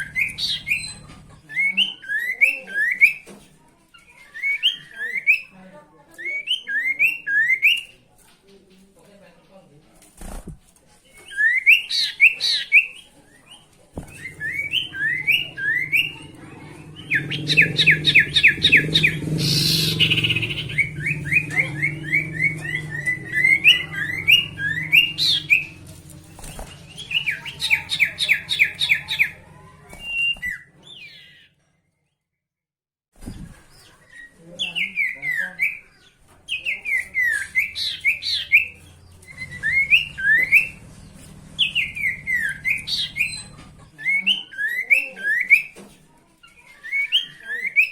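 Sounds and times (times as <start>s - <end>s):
bird chirps and trills: 0.0s - 3.3s, 11.4s - 31.6s, 33.3s - 45.8s.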